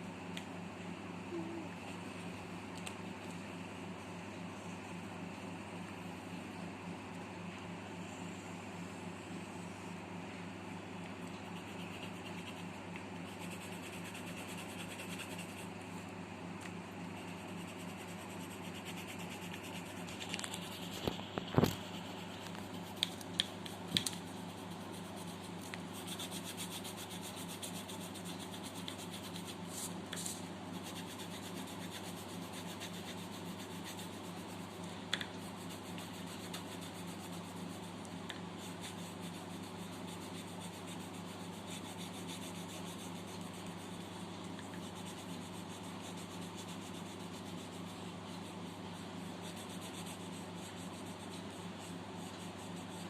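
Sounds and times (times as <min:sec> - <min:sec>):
pencil scratching on paper: 0:11.5 - 0:15.7, 0:17.1 - 0:53.0.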